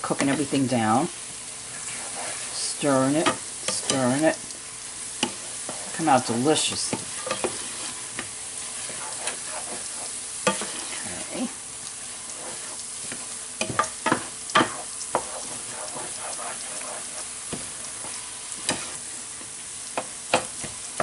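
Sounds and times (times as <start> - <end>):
food sizzling in a frying pan: 0.0 - 21.0
spoon scraping a pan: 1.7 - 4.3, 5.1 - 11.4, 12.0 - 19.1, 20.0 - 20.8.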